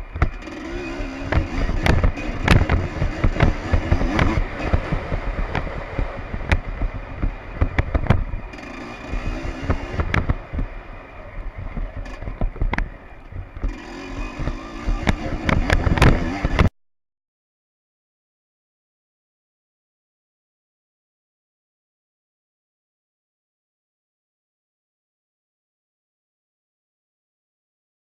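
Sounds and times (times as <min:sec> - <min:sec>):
two-stroke motorbike engine: 0:00.0 - 0:16.7
sharp knocks: 0:01.3 - 0:08.3.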